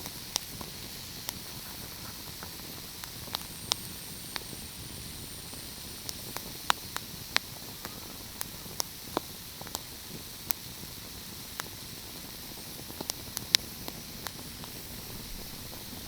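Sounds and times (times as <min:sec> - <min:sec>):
wood fire crackling: 0:00.0 - 0:16.0
thin high whine: 0:00.6 - 0:08.8.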